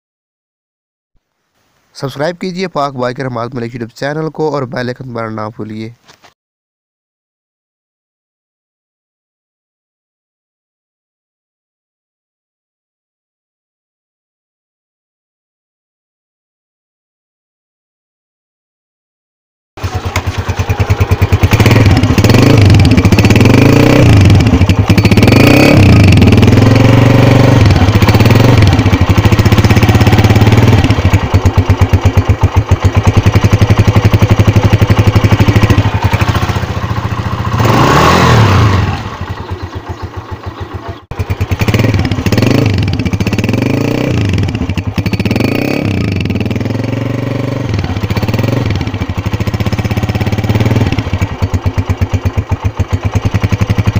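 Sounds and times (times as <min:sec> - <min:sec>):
motorcycle engine revving: 0:19.8 - 0:53.9.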